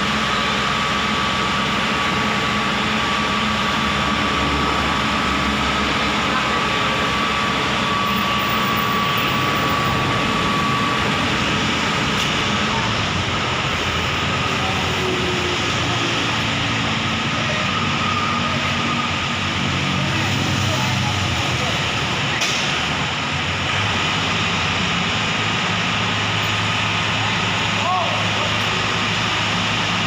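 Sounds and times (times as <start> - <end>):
heavy diesel engine running: 0.0 - 30.0.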